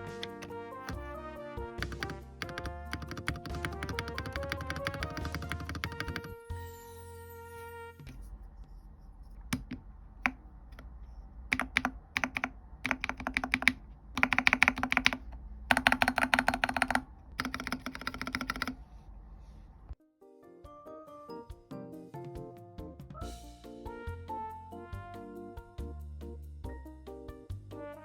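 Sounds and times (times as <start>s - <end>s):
typing on a mechanical keyboard: 1.8s - 6.4s, 9.5s - 10.9s, 11.5s - 18.8s.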